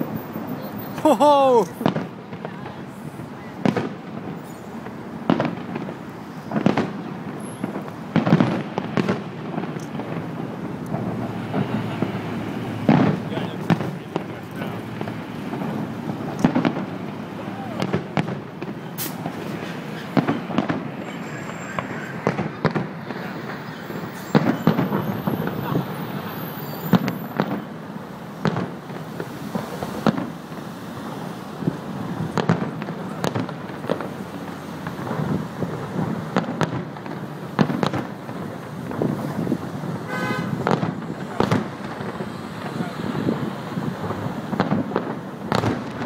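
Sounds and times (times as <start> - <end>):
background hubbub: 0.0 - 46.0
firework shells bursting: 3.7 - 27.8.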